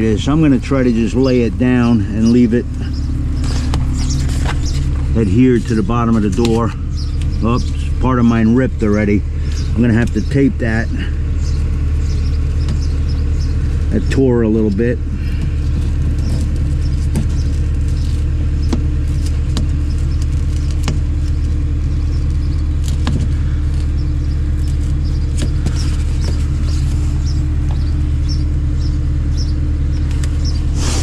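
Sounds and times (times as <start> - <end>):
low machine hum: 0.0 - 31.0
clicks and crackles of plastic: 15.2 - 28.0.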